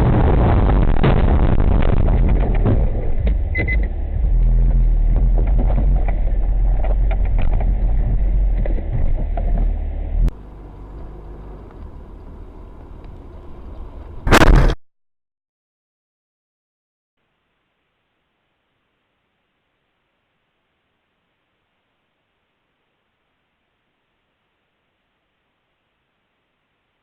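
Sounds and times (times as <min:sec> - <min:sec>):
car engine and tyres rumbling: 0:00.0 - 0:14.7
short loud noise: 0:14.3 - 0:14.8.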